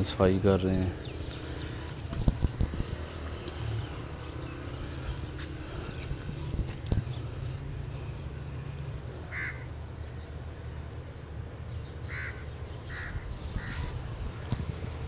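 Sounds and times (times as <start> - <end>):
bird harsh calls: 9.3 - 9.7, 11.8 - 14.1.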